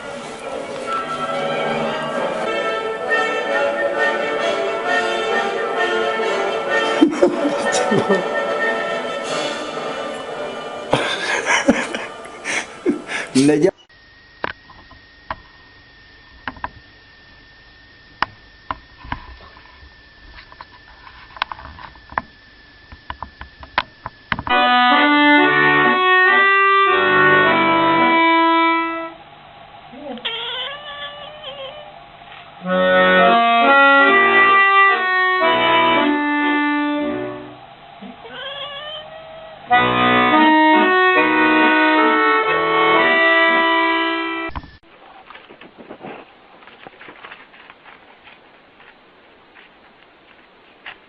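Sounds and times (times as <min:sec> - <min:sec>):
accordion music: 0:00.0 - 0:13.4, 0:24.5 - 0:29.2, 0:32.6 - 0:38.0, 0:39.6 - 0:44.6.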